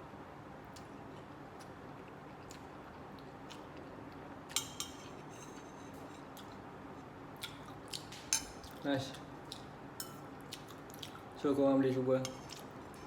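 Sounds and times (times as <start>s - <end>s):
kitchen exhaust fan humming: 0.0s - 13.0s
cutlery clinking on a plate: 4.5s - 5.6s.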